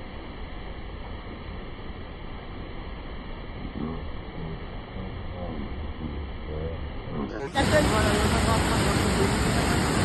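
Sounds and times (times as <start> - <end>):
person speaking: 7.1 - 10.0
waterfall rushing: 7.4 - 10.0.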